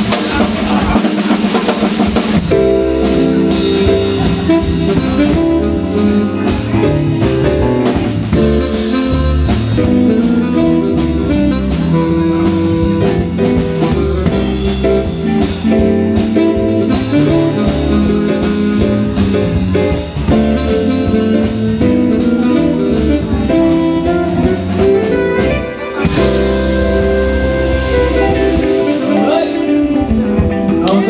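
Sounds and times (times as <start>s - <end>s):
drum kit keeping time: 0.0s - 31.0s
jazz band playing: 0.0s - 31.0s.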